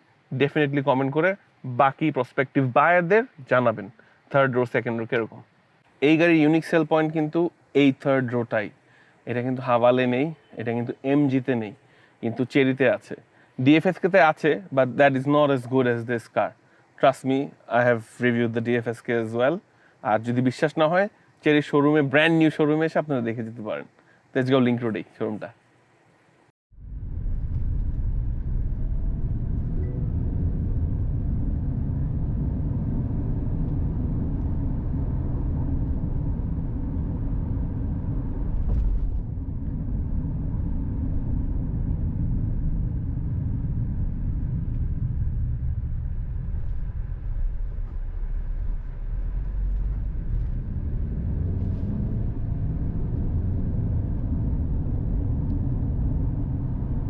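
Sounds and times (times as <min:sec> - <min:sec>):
vehicle engine and tyres rumble: 0:26.7 - 0:57.0.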